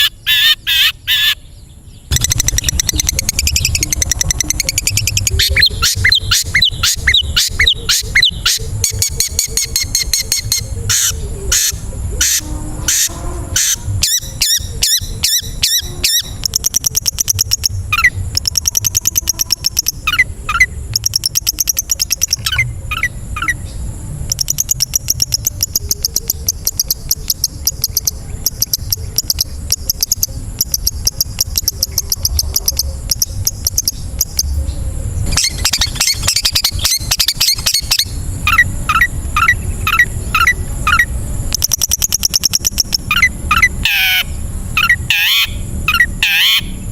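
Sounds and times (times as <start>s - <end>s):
bird song with whistles: 2.0s - 23.7s, 35.3s - 44.2s, 44.8s - 46.8s.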